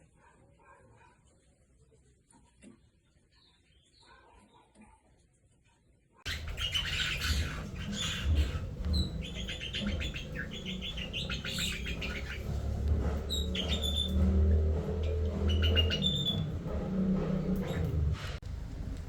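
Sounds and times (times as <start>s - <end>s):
caged birds chirping and squawking: 6.3s - 19.0s
steady low rumble: 6.3s - 19.0s.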